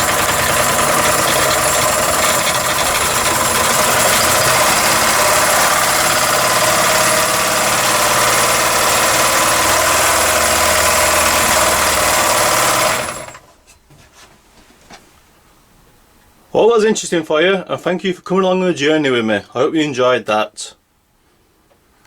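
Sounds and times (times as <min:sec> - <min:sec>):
model steam engine running: 0:00.0 - 0:13.4.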